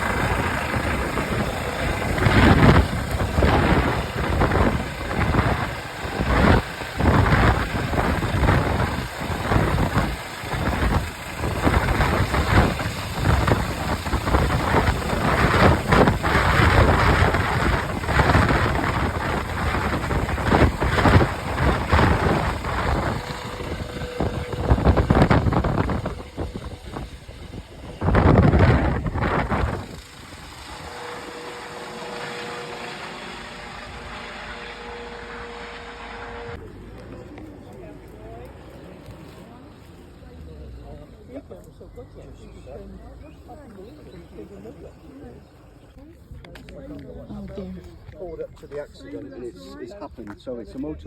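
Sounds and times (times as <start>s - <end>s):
wind buffeting microphone: 0.0s - 36.7s
vehicle engine noise: 0.0s - 49.2s.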